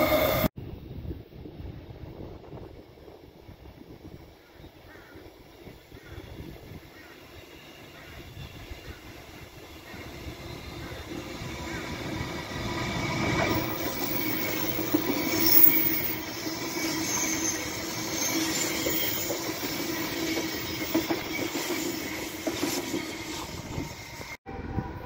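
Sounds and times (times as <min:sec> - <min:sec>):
electric train whine: 0:00.0 - 0:00.5, 0:05.4 - 0:25.0
train wheels on rails: 0:06.4 - 0:24.4.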